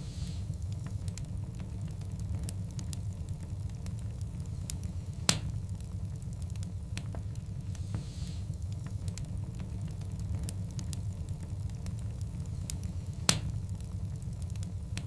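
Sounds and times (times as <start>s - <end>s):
low rumble of flames: 0.0s - 15.0s
wood fire crackling: 0.0s - 15.0s
loud sharp pop: 13.3s - 13.5s.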